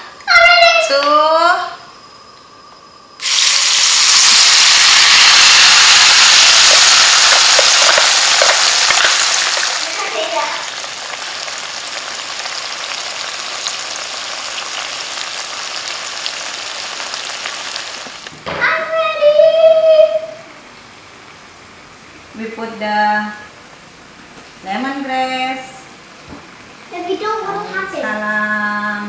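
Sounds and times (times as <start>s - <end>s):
crackles of frying paste: 3.2s - 18.3s
spice paste sizzling in oil: 3.2s - 18.3s.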